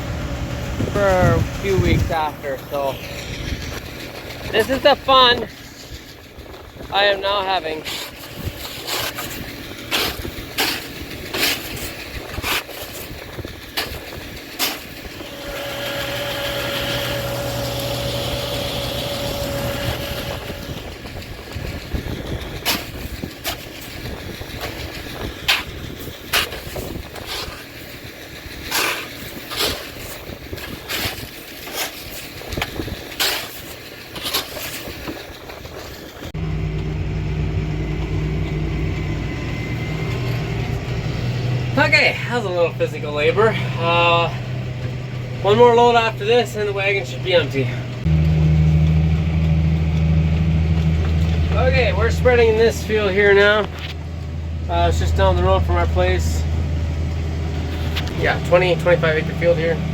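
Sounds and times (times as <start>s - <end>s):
steady hum: 0.0s - 12.4s, 14.6s - 30.0s
engine running steadily: 0.0s - 59.9s
knocks and scrapes of fertilizer: 6.9s - 36.0s, 57.6s - 59.7s.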